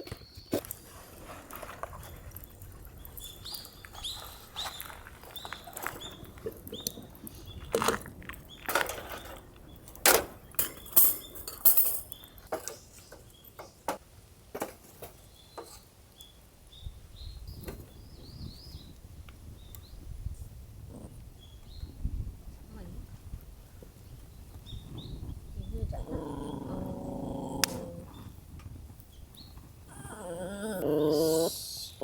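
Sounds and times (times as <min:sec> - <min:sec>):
cookware and utensils clinking: 0:10.1 - 0:12.8.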